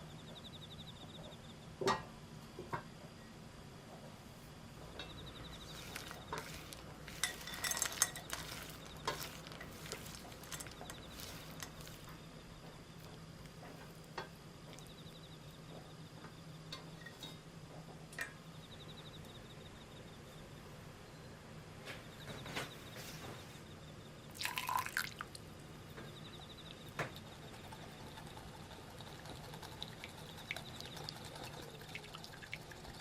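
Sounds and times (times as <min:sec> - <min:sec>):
faint hum: 0:00.0 - 0:33.0
utensils clinking against bowl: 0:05.0 - 0:12.2.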